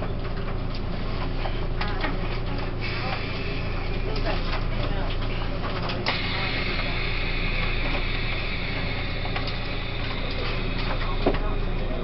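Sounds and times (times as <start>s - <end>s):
train rumble and hum: 0.0s - 12.0s
high steady whine: 6.0s - 12.0s.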